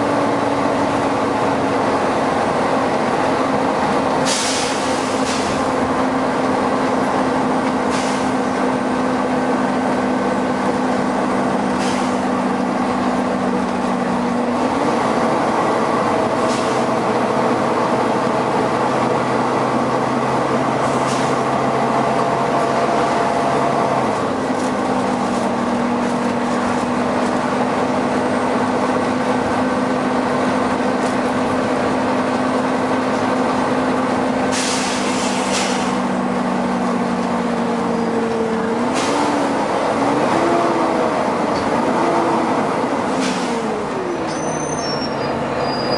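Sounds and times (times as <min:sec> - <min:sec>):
bus cooling fan rushing: 0:00.0 - 0:44.4
bus engine low hum: 0:00.0 - 0:45.9
air hisses: 0:04.3 - 0:05.6, 0:34.5 - 0:36.0.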